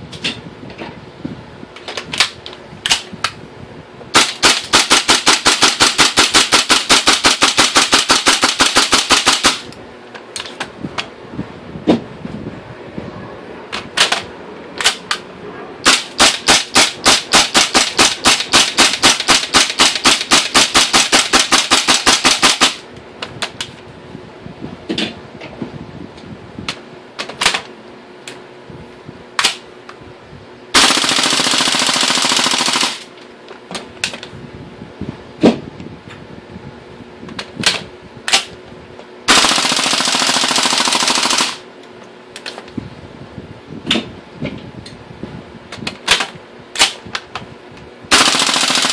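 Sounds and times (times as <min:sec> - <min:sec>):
airsoft rifle full-auto burst: 0:04.2 - 0:09.7, 0:15.9 - 0:22.8, 0:30.7 - 0:33.1, 0:39.3 - 0:41.6, 0:48.1 - 0:48.9.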